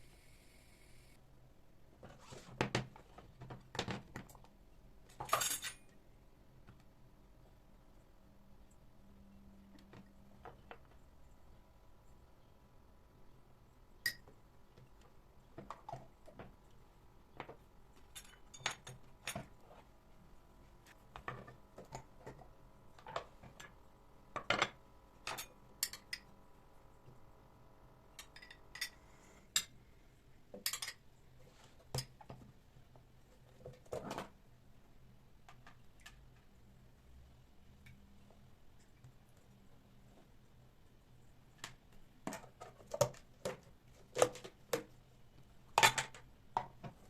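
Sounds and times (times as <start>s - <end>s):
dishes and cutlery clinking: 24.5s - 26.3s, 30.6s - 31.0s.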